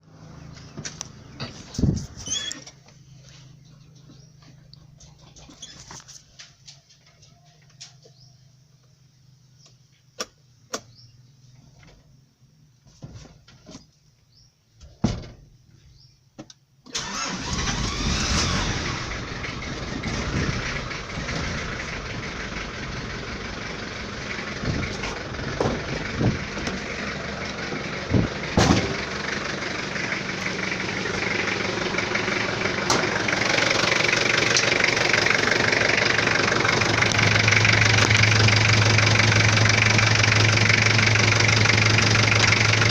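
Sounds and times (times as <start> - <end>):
diesel engine starting and running: 0.0 - 6.5, 16.9 - 42.9.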